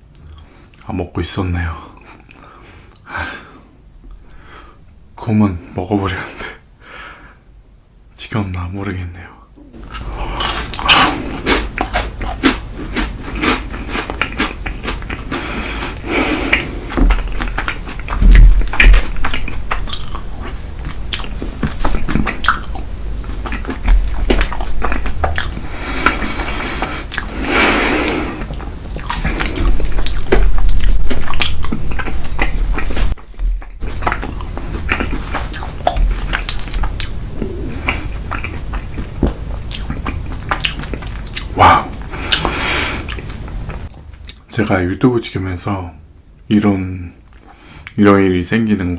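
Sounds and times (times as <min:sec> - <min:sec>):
chewing and biting: 0:09.8 - 0:44.4.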